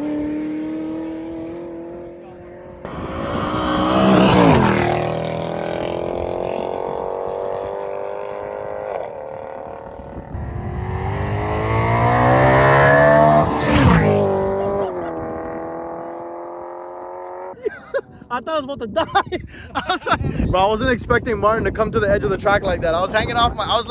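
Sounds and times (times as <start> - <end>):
car engine revving under load: 2.8 - 9.2, 10.3 - 17.5
loud rush of noise: 2.9 - 6.8.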